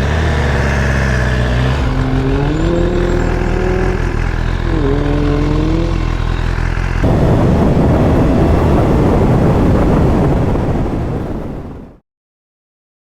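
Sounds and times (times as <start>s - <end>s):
motorcycle engine running: 0.0s - 10.4s
wind noise: 0.0s - 12.0s.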